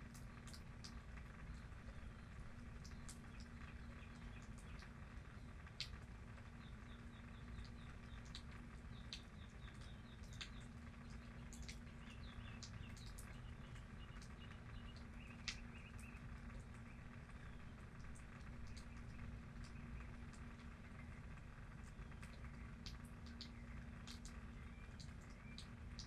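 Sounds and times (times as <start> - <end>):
faint hiss and hum: 0.0 - 26.0
light rain dripping: 0.0 - 26.0
bird chirping: 6.5 - 21.2, 23.2 - 26.0.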